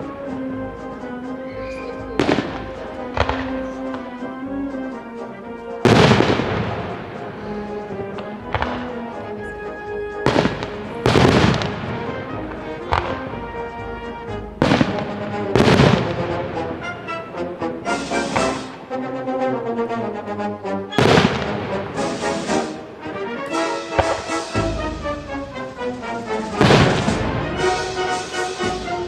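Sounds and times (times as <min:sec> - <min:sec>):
background music with held notes: 0:00.0 - 0:29.0
fireworks booming: 0:02.1 - 0:04.1, 0:05.8 - 0:09.4, 0:10.2 - 0:16.8, 0:17.8 - 0:18.8, 0:21.0 - 0:22.9, 0:23.5 - 0:29.0
firework bang: 0:10.2 - 0:12.1, 0:14.6 - 0:16.2, 0:23.6 - 0:25.0, 0:26.4 - 0:28.6.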